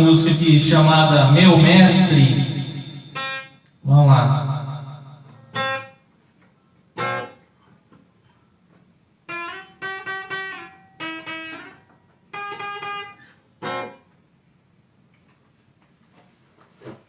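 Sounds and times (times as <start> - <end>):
guitar chords strummed: 0.0 - 5.8.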